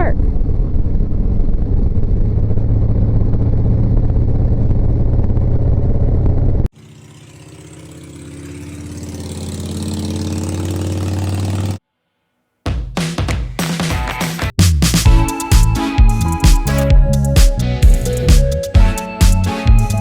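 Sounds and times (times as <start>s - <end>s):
second engine steady tones: 1.8s - 11.8s
motorcycle engine running: 2.1s - 11.8s.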